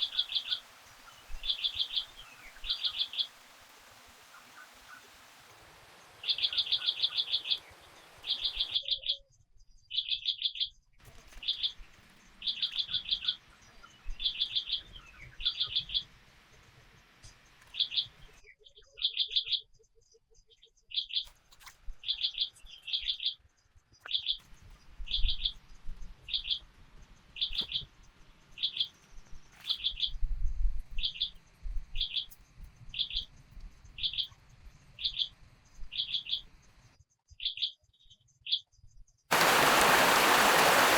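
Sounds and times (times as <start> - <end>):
bird trilled call: 0.0 - 3.5, 6.2 - 9.1.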